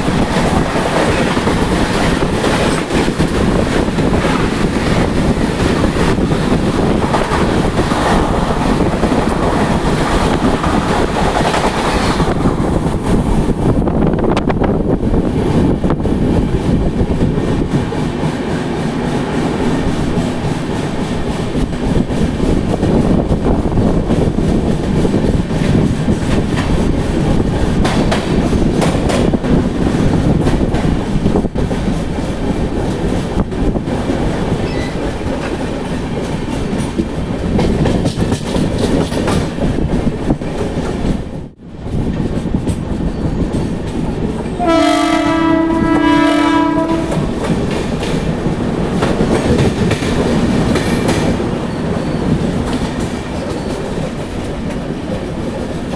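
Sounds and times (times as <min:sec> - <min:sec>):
wheels clattering on rails: 0:00.0 - 0:14.7, 0:15.4 - 0:55.9
train rumble: 0:00.0 - 0:55.9
train horn chord: 0:44.6 - 0:47.3.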